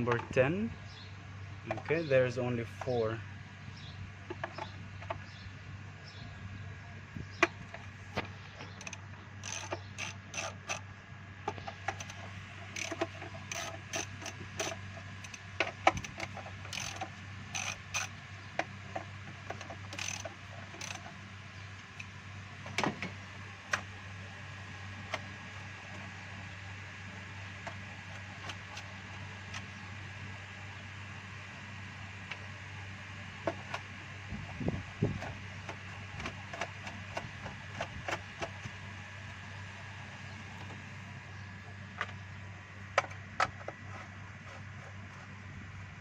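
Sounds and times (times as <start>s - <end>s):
steady low hum: 0.0s - 46.0s
hand ratchet clicking: 8.8s - 10.8s, 11.9s - 18.1s, 19.5s - 21.1s.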